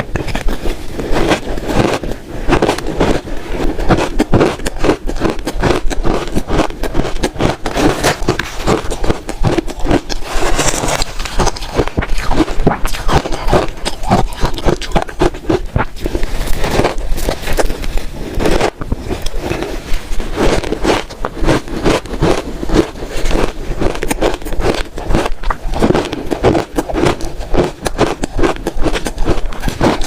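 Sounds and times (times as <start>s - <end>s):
chewing crunchy ice: 0.0s - 30.0s.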